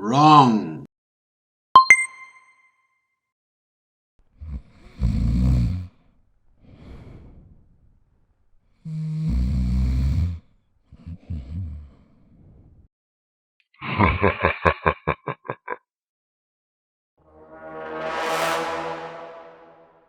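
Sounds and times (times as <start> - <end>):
loud rattling snores: 4.4 - 6.1, 8.8 - 12.1
breathy out-breath: 4.4 - 8.0, 8.7 - 12.9.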